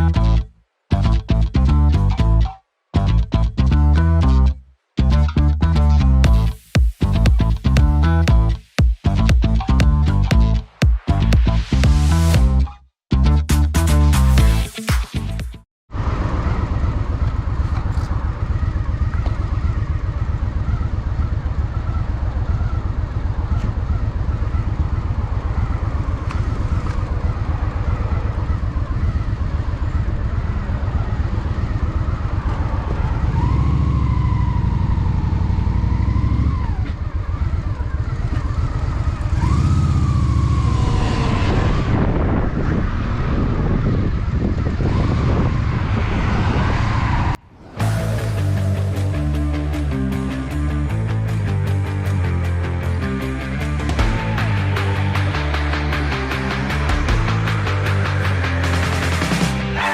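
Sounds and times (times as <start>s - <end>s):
motorcycle engine running: 16.4s - 45.8s, 47.8s - 59.9s.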